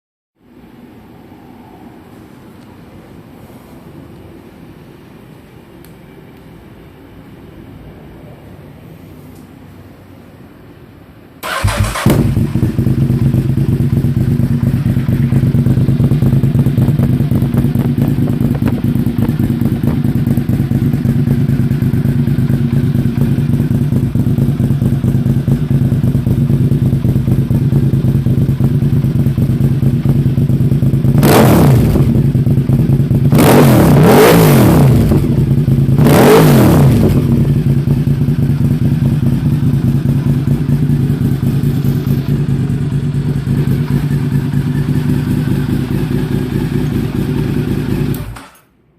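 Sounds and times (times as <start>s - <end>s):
motorcycle engine idling: 11.4s - 33.4s, 34.8s - 36.1s, 36.8s - 48.4s
motorcycle engine revving: 11.4s - 48.5s
motorcycle engine starting: 11.4s - 48.7s.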